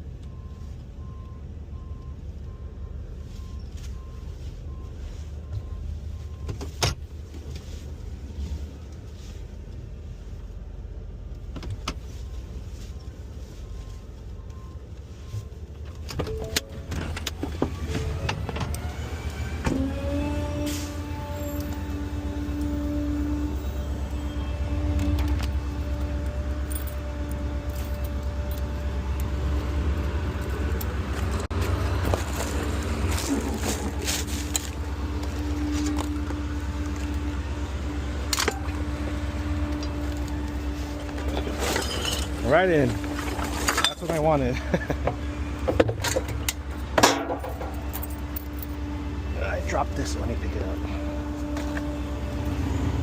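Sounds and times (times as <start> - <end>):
garbage truck engine rumbling: 12.4 - 53.0
trash clattering: 31.1 - 36.3, 40.9 - 48.6.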